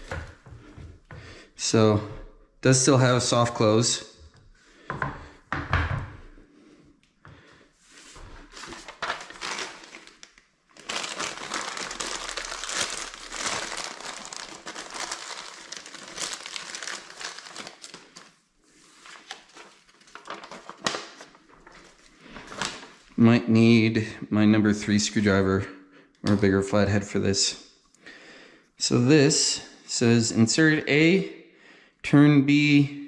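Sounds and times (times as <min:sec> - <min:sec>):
plastic packaging crinkling: 0:08.5 - 0:18.4, 0:19.0 - 0:23.1.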